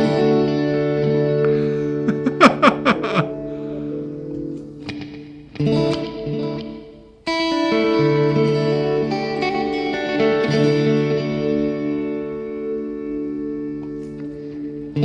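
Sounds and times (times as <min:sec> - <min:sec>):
electric guitar chords: 0:00.0 - 0:15.0
guitar pitch swoops: 0:01.2 - 0:06.8.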